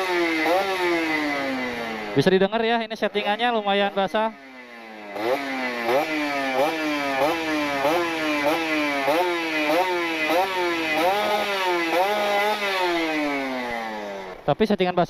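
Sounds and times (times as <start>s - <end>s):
two-stroke motorcycle engine revving: 0.0s - 14.6s
rider talking: 2.0s - 4.4s, 14.4s - 15.0s.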